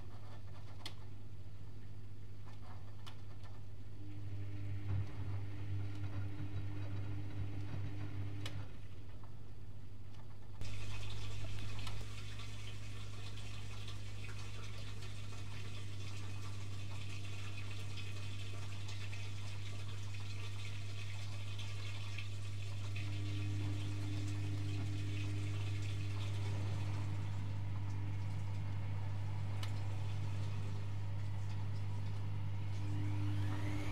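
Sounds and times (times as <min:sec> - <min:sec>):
water rushing into washing machine: 0:10.6 - 0:33.9
low hum: 0:16.4 - 0:33.9.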